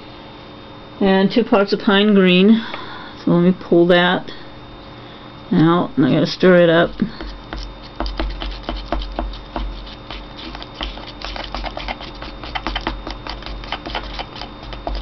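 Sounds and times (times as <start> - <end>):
stirrer tapping paint pot: 7.2 - 15.0.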